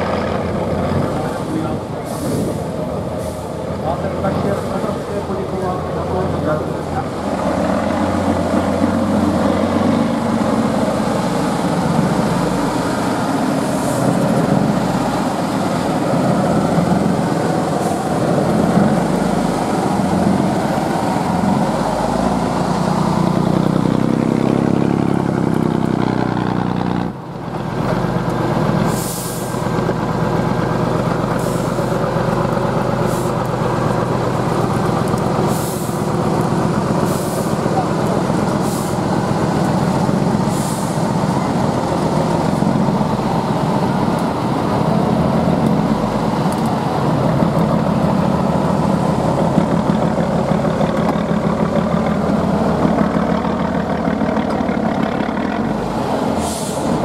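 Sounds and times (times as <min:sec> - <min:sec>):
truck diesel engine revving: 0:00.0 - 0:57.0
air brakes hissing: 0:02.0 - 0:03.6, 0:28.9 - 0:29.7, 0:31.4 - 0:32.0, 0:33.0 - 0:33.4, 0:35.5 - 0:36.1, 0:37.0 - 0:37.6, 0:38.6 - 0:39.1, 0:40.4 - 0:41.6, 0:56.3 - 0:57.0.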